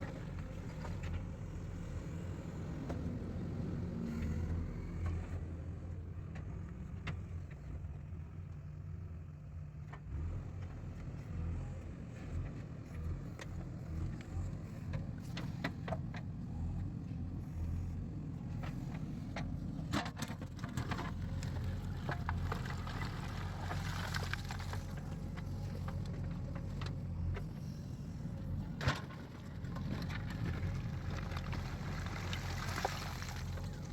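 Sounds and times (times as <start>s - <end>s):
diesel engine running: 10.1s - 33.9s.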